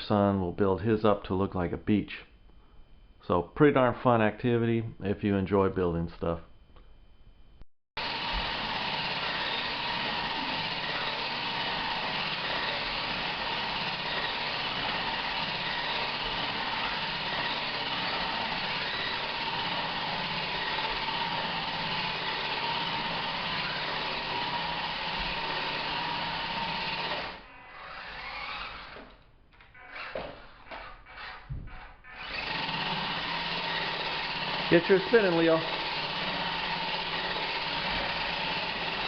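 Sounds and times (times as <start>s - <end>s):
toy truck motor whining: 8.0s - 39.0s.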